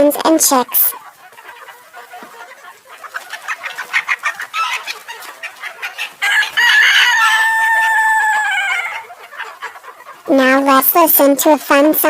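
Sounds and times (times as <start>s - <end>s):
chickens clucking: 0.0s - 12.0s
rooster crowing: 6.2s - 9.1s.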